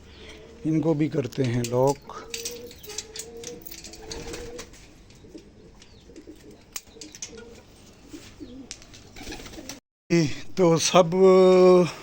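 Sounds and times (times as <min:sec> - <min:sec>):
pigeons cooing softly: 0:00.0 - 0:09.8.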